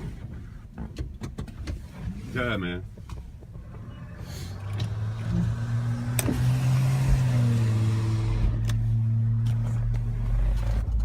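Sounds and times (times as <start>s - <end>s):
vehicle engine running: 3.5s - 11.0s.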